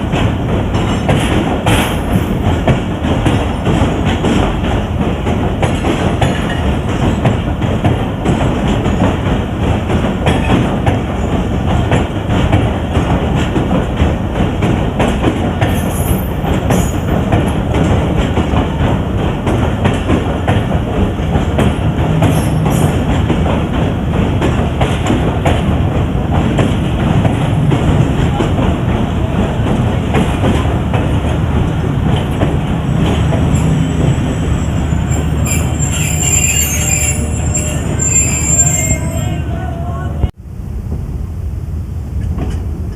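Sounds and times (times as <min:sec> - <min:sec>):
wheels clattering over rail joints: 0:00.0 - 0:39.4
train rumbling along track: 0:00.0 - 0:42.9
high wheel squeals: 0:33.5 - 0:39.9.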